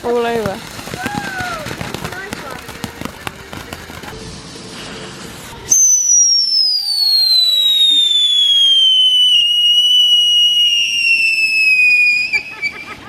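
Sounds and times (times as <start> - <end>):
firework crackles: 0.0 - 13.0
firework whistle falling in pitch: 5.7 - 12.8.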